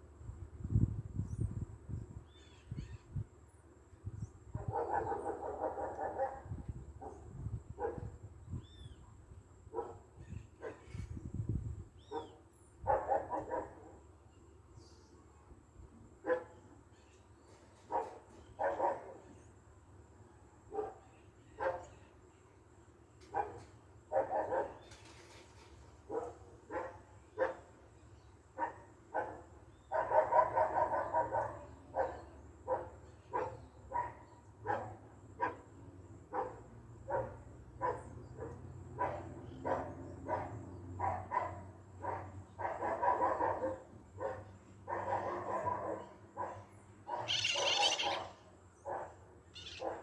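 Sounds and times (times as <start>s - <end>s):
dog barking: 4.6s - 8.1s, 9.7s - 10.8s, 12.1s - 14.0s, 16.2s - 16.6s, 17.9s - 19.2s, 20.7s - 21.0s, 21.6s - 21.9s, 23.3s - 24.8s, 26.1s - 27.7s, 28.6s - 35.7s, 36.3s - 50.0s
high-pitched hoarse call: 47.3s - 48.4s.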